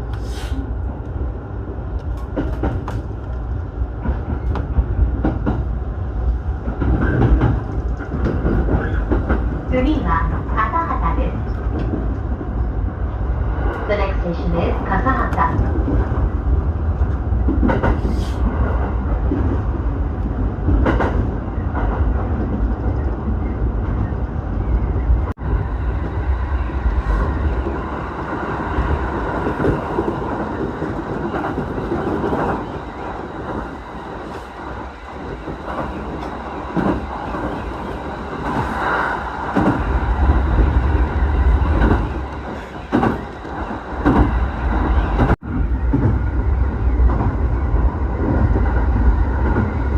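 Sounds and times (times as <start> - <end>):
train rumbling: 0.0 - 49.9.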